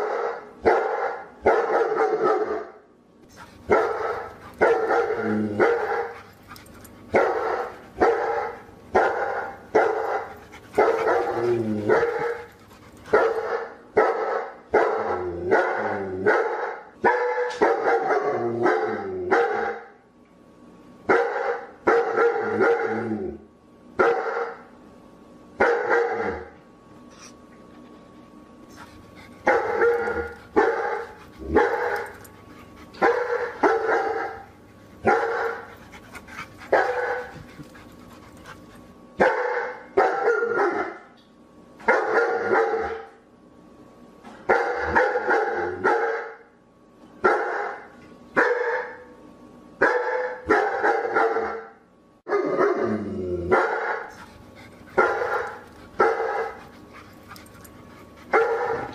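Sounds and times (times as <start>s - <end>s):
dog barking: 0.0s - 2.8s, 3.7s - 6.3s, 7.1s - 12.5s, 13.1s - 19.9s, 21.1s - 23.0s, 24.0s - 24.6s, 25.6s - 26.5s, 29.4s - 32.3s, 33.0s - 35.7s, 36.7s - 37.4s, 39.2s - 41.1s, 41.8s - 43.2s, 44.5s - 46.4s, 47.2s - 49.1s, 49.8s - 52.8s, 53.5s - 54.2s, 55.0s - 56.6s, 58.3s - 58.9s.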